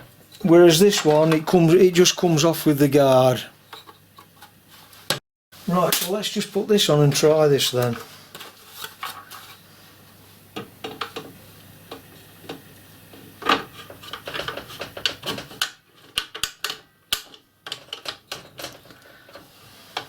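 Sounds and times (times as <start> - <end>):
plastic parts clicking and knocking: 13.4 - 19.4.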